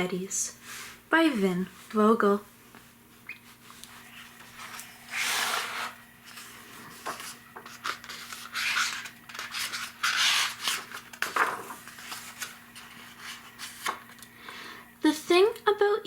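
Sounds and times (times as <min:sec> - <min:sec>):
book pages turning: 0:03.3 - 0:14.3.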